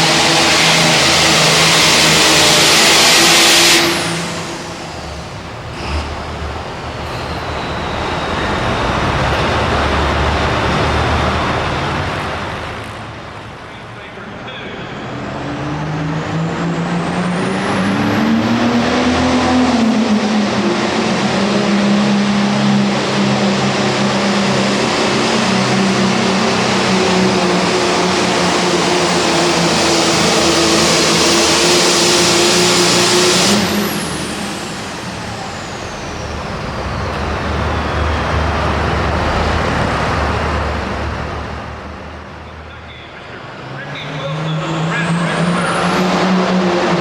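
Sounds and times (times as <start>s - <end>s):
loud turbo hiss: 0.0s - 10.0s
turbocharger whine: 0.0s - 12.8s, 14.8s - 47.0s
tractor engine at full power: 0.0s - 13.7s, 14.8s - 47.0s.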